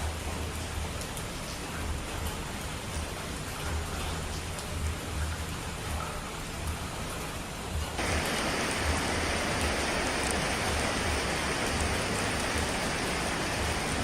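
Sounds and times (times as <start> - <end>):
rain hissing: 8.0 - 14.0.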